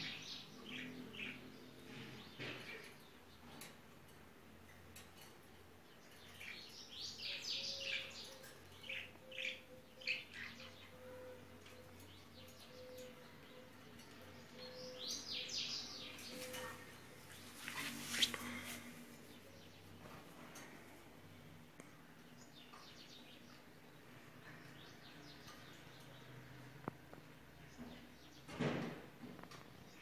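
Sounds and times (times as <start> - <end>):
birds chirping: 4.6 - 28.6.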